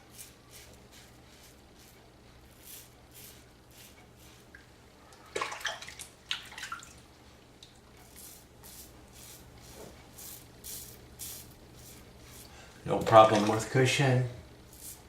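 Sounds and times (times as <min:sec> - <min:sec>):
razor scraping stubble: 0:00.0 - 0:04.5, 0:08.0 - 0:12.5
water splash: 0:13.1 - 0:13.7.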